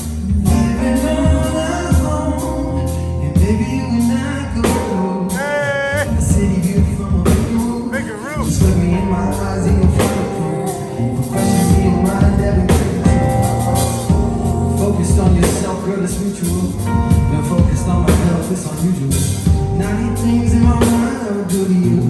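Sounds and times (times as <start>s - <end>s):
bass: 0.0s - 22.0s
person singing: 0.0s - 22.0s
drum hits: 11.7s - 15.9s.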